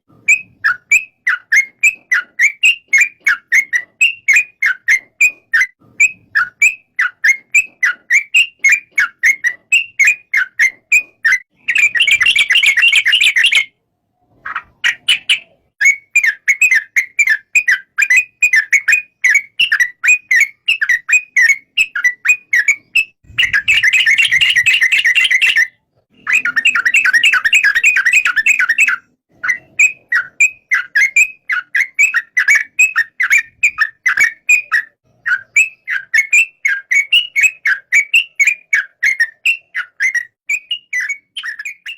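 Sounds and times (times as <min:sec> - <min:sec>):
bulbul chirping rapidly: 0:00.3 - 0:13.7, 0:14.5 - 0:41.9.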